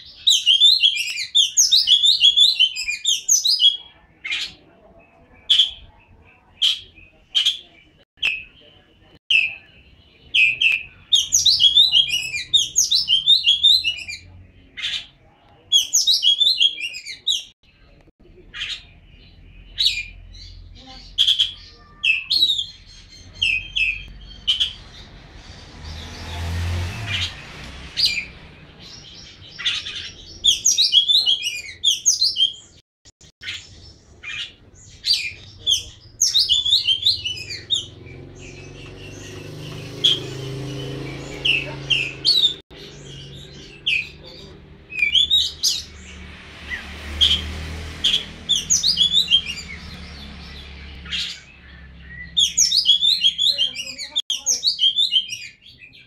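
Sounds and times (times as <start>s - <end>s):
sharp bird calls: 0.0s - 56.0s
bird singing whistled notes: 33.4s - 46.0s.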